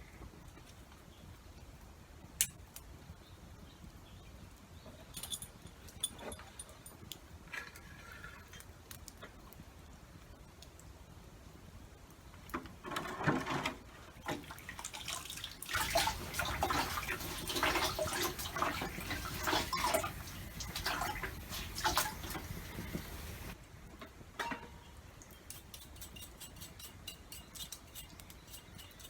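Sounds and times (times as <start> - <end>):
small knocks and clatter: 12.5 - 14.8
water pouring and splashing: 13.0 - 23.6.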